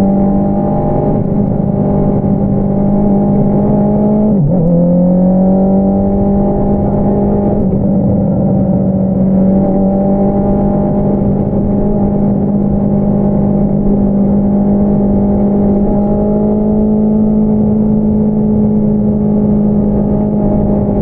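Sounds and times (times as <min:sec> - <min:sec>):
motorcycle engine running: 0:05.7 - 0:21.0.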